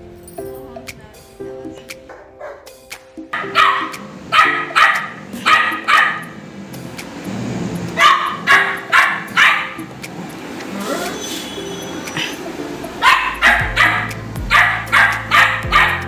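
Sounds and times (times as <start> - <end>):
dog barking: 2.1 - 2.7, 3.4 - 6.4, 8.0 - 9.9, 13.0 - 16.0.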